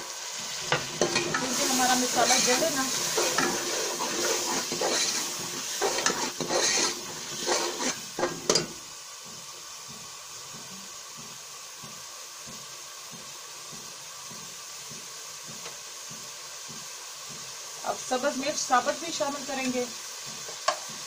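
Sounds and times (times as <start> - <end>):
masala sizzling and bubbling: 0.0 - 21.0
ladle scraping a steel pot: 2.2 - 8.7.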